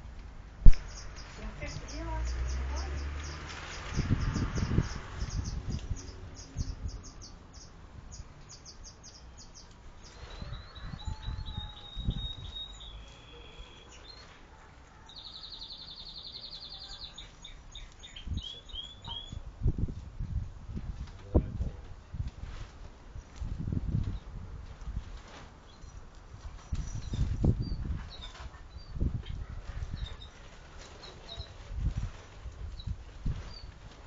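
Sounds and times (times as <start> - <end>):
small birds chirping: 0.6 - 19.5, 26.6 - 34.0
bird trill: 0.9 - 14.3, 15.1 - 19.4.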